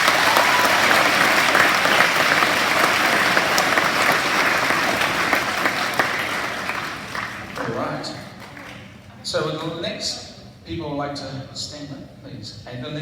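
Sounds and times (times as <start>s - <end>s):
children clapping: 0.0s - 9.7s.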